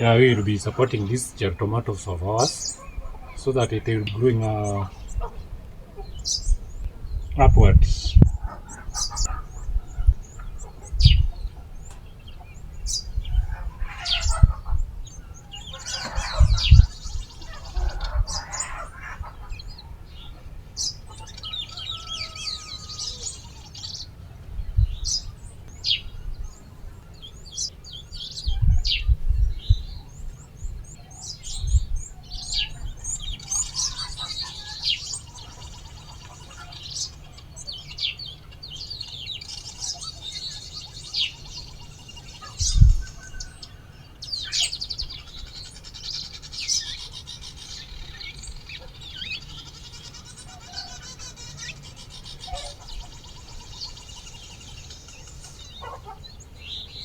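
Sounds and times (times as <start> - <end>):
chickens clucking: 0.0 - 27.7, 28.4 - 56.9
small birds chirping: 0.0 - 57.0
dull low thumps: 6.4 - 11.6.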